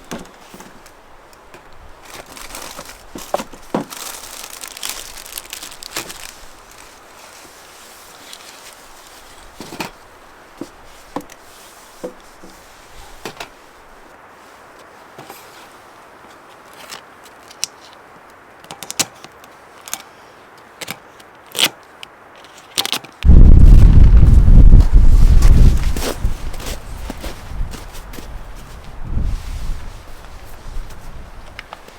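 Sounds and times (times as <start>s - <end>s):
low steady hiss: 0.0s - 31.9s
loud low rumble: 23.2s - 26.4s.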